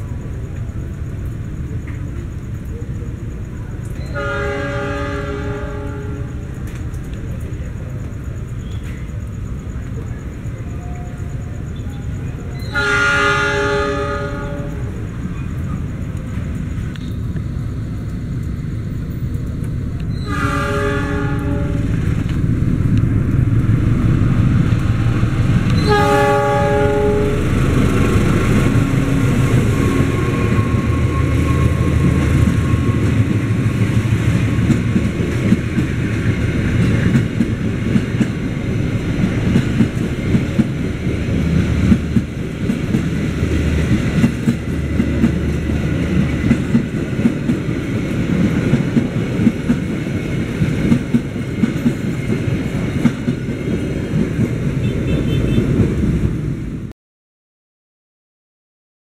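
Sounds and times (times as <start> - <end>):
diesel locomotive engine: 0.0 - 56.9
train wheels clattering over rail joints: 27.5 - 54.7.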